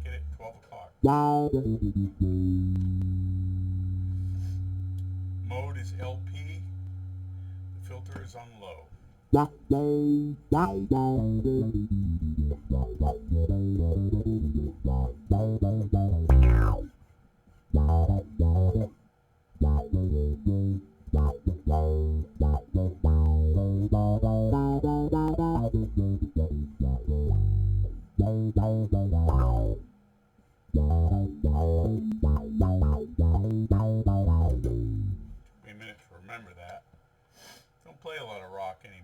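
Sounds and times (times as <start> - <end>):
electric bass with envelope filter: 0.0 - 0.4, 1.0 - 8.0, 9.4 - 16.9, 17.7 - 19.0, 19.6 - 29.9, 30.7 - 35.4.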